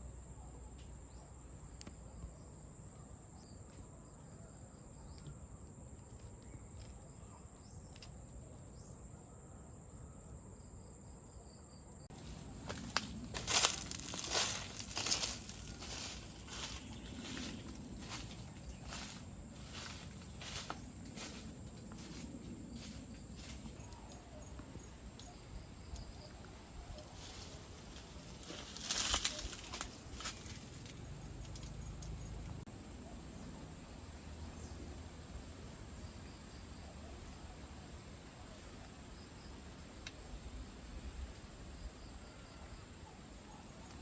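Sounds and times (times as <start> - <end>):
rustling and crackling: 12.1 - 24.1, 26.9 - 32.6.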